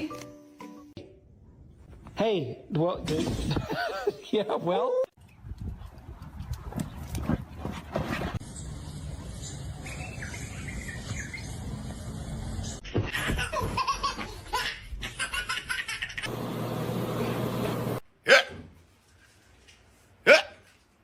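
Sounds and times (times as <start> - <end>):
person laughing: 3.4 - 4.6.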